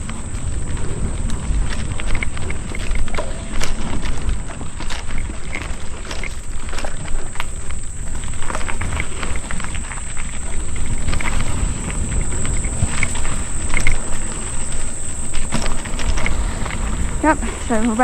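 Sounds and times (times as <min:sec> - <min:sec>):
bike rattling and clicking: 0:00.0 - 0:18.0
wind rumbling on microphone: 0:00.0 - 0:18.0.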